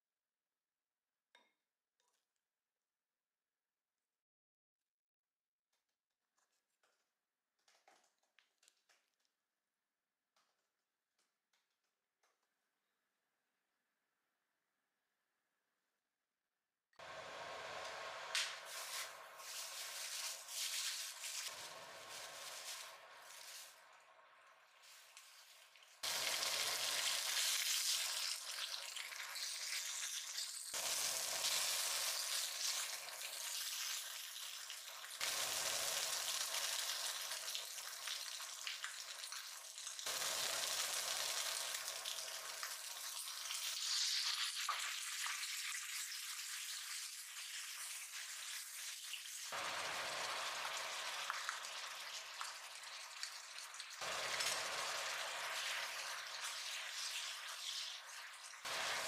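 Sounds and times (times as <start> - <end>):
squid sizzling in frying oil: 17.2 - 59.0.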